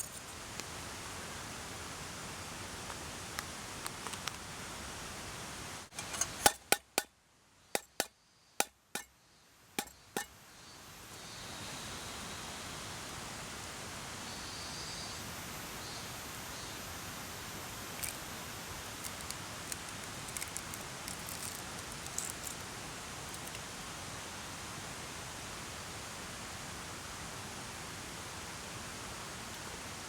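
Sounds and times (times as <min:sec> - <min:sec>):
utensils clinking against dishes: 0:05.9 - 0:06.8.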